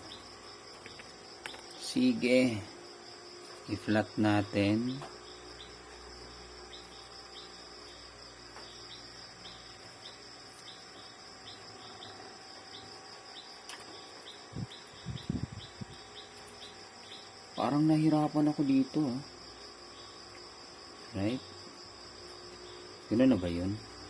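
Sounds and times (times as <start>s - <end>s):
insect chirping: 0.0s - 24.0s
soft low thumps: 14.5s - 16.0s.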